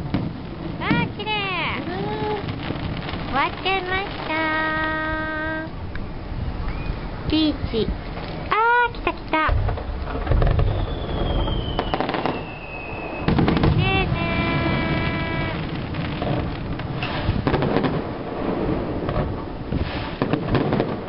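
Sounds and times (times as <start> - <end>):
firework whistling: 0.9 - 7.3, 9.5 - 21.0
fireworks shells bursting: 9.2 - 21.0.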